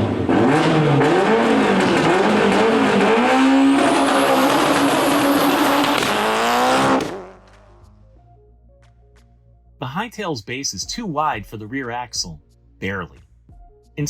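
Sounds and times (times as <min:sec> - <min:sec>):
rally car engine revving: 0:00.0 - 0:07.7.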